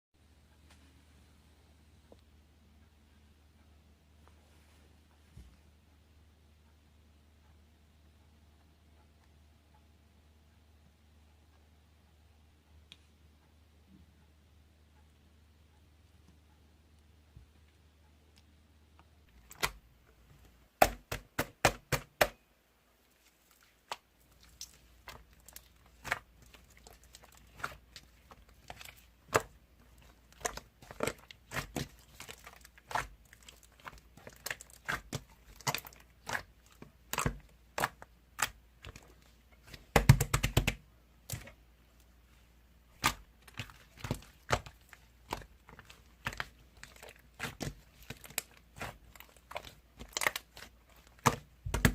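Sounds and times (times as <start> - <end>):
crinkling handling noise: 23.0 - 51.9.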